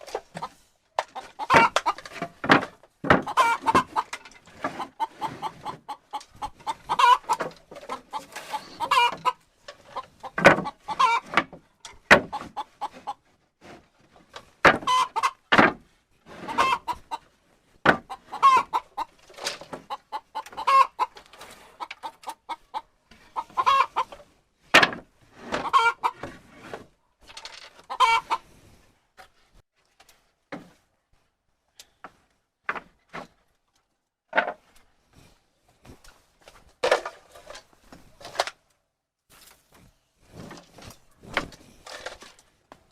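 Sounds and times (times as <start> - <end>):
chickens clucking: 0.0 - 13.4, 14.4 - 15.6, 16.3 - 24.4, 25.4 - 26.4, 27.7 - 28.5.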